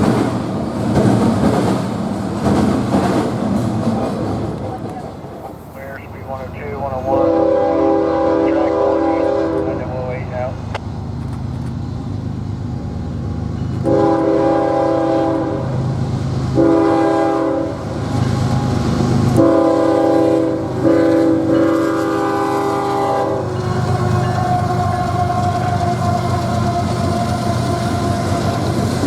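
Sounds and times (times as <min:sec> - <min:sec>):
passing train rumble: 0:00.0 - 0:29.0
locomotive air horn blasts: 0:05.8 - 0:10.6, 0:13.8 - 0:15.7, 0:16.6 - 0:17.9, 0:19.4 - 0:29.0.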